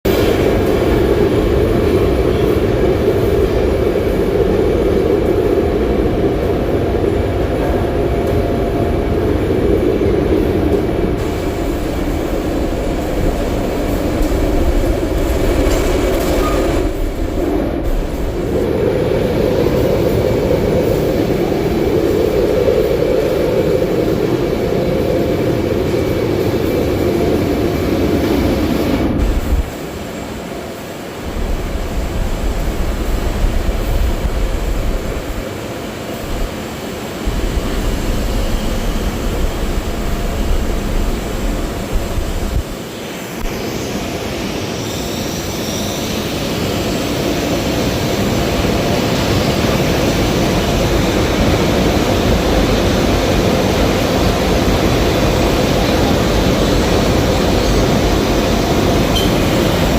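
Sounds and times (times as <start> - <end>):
furnace steady rushing noise: 0.0 - 59.9.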